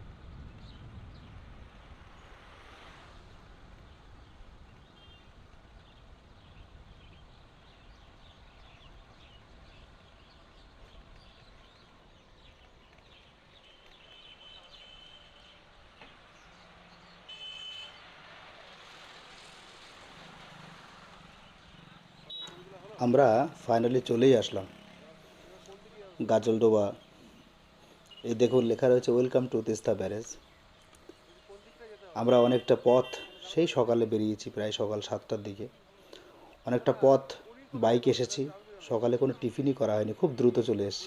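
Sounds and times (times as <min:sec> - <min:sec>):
faint road traffic rumble: 0:00.0 - 0:41.0
short vehicle horn toot: 0:17.3 - 0:18.0, 0:22.3 - 0:22.6, 0:32.3 - 0:33.5.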